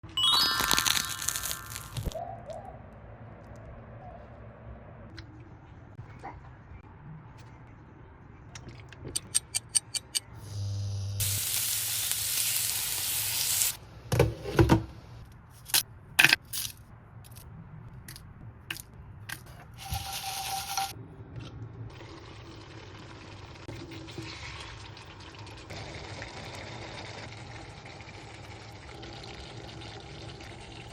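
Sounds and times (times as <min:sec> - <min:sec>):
food frying sizzle: 0:00.4 - 0:02.2, 0:10.6 - 0:13.8, 0:24.3 - 0:30.9.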